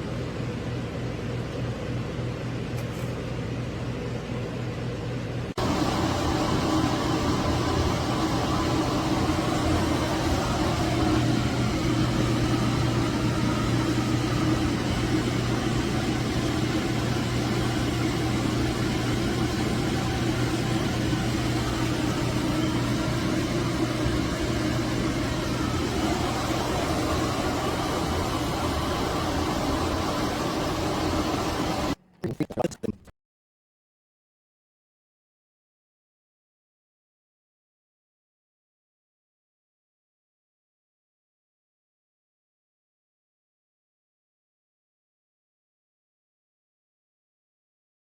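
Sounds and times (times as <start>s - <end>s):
clip fan running: 5.6s - 32.0s.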